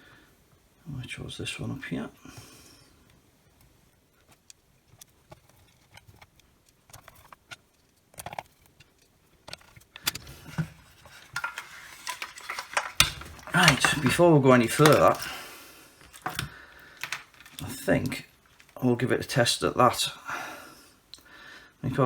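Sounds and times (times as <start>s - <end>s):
plastic housing parts handled: 4.4s - 18.8s.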